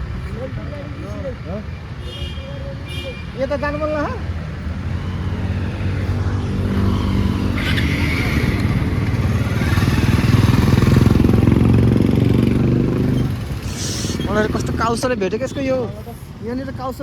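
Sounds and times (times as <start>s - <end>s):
motorcycle engine running: 6.0s - 14.8s.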